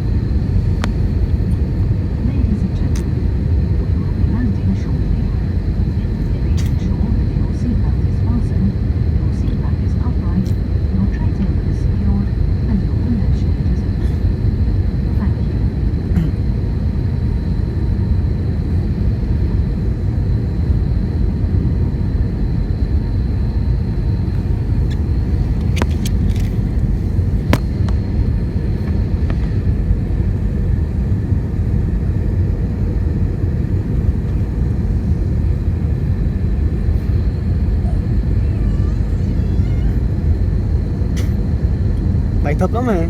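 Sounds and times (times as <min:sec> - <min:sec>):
airliner cabin rumble: 0:00.0 - 0:43.0.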